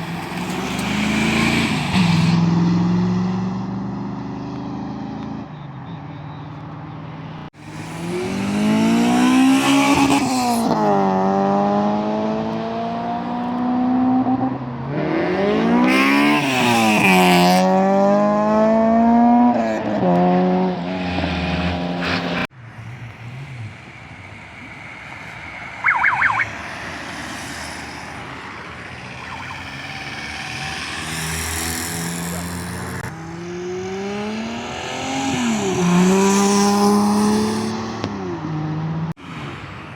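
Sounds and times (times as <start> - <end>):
vehicle engine accelerating: 0.0 - 5.5, 7.7 - 14.4, 15.0 - 39.2
high-pitched pip: 25.8 - 26.6.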